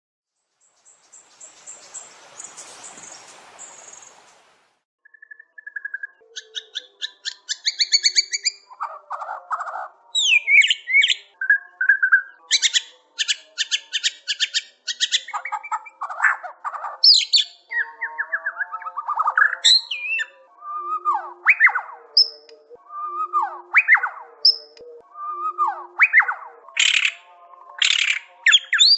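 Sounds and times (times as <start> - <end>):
bird singing: 0.4 - 28.9
faint hiss: 0.6 - 4.8.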